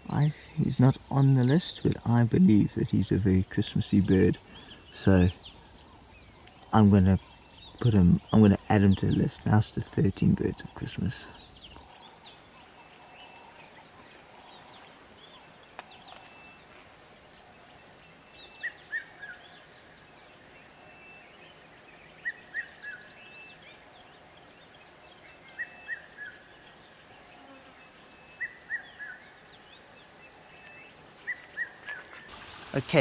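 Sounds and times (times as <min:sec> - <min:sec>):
birds chirping faintly: 0:00.0 - 0:11.9, 0:30.7 - 0:33.0
steady high-pitched hiss: 0:00.0 - 0:11.9, 0:32.2 - 0:33.0.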